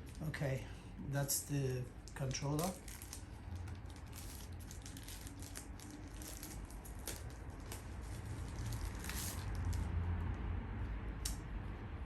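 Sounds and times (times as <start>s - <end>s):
packaging clicks and rustles: 2.0s - 9.9s.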